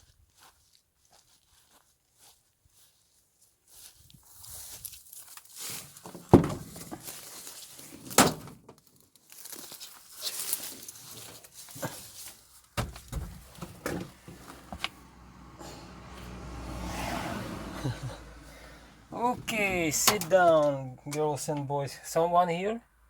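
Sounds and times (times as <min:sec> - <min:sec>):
rustling and handling noise: 0:02.8 - 0:15.0.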